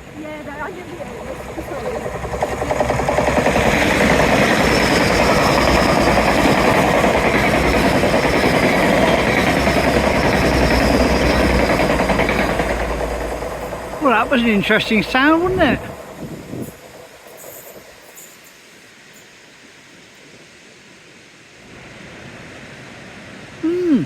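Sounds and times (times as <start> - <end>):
train rumbling past: 0.0 - 23.6
train wheels rattling: 0.4 - 19.6.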